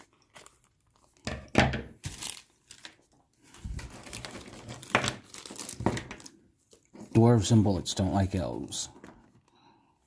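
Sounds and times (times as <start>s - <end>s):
plastic bag crinkling: 2.0s - 7.0s.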